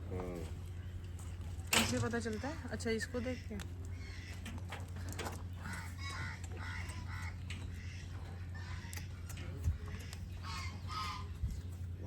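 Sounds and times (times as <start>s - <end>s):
poultry calling: 2.2s - 11.7s.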